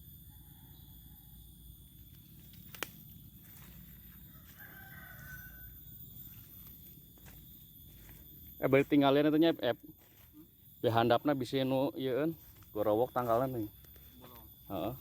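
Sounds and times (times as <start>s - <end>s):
rooster crowing faintly: 3.6s - 6.6s.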